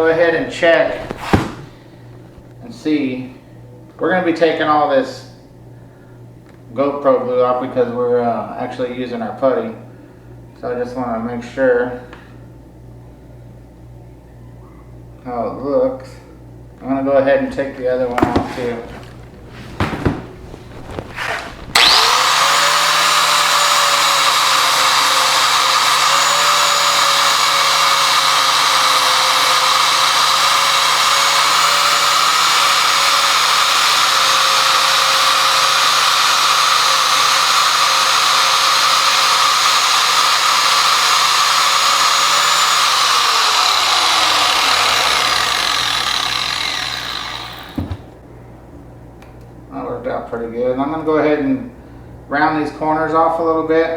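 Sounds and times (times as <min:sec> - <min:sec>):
angle grinder whining: 0:00.0 - 0:02.6, 0:17.8 - 0:48.2.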